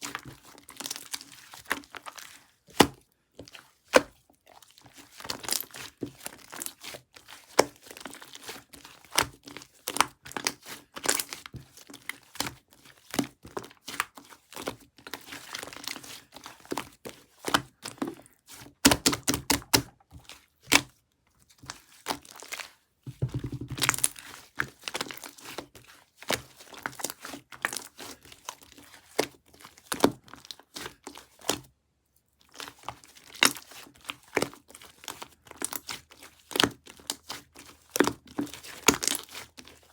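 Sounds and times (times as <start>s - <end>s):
slime squishing and popping: 23.1s - 24.3s.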